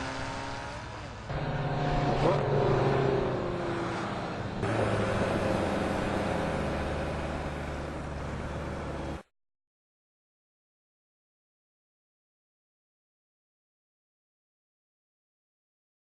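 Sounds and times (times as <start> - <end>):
car engines running at speed: 0.0 - 9.3.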